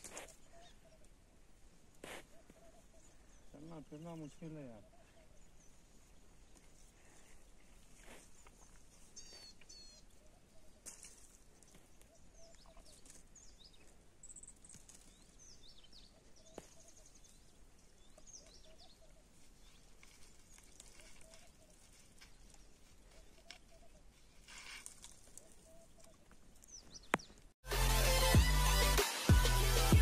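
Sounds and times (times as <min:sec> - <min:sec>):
birds chirping and whistling: 0:09.1 - 0:10.0.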